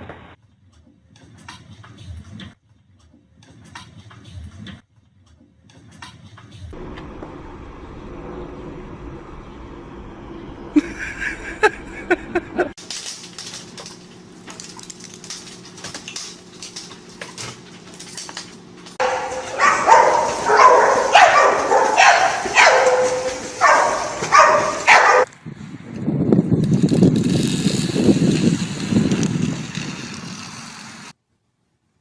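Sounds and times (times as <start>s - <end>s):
dog calling: 19.0s - 25.3s.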